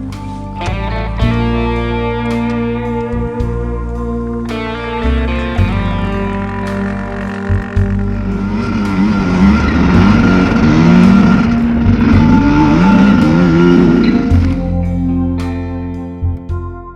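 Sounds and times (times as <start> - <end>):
background music: 0.0 - 16.9
dirt bike engine revving: 4.4 - 14.9.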